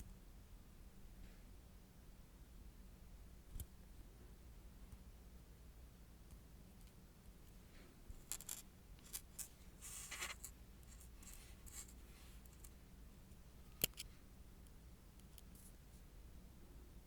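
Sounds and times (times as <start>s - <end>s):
light scratching and tapping: 8.2s - 12.8s.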